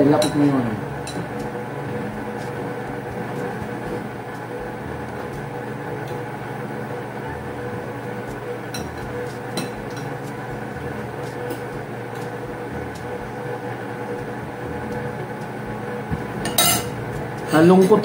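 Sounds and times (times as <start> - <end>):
steady droning hum: 0.0 - 18.0
metal spoon clinking ceramic bowl: 16.5 - 16.9.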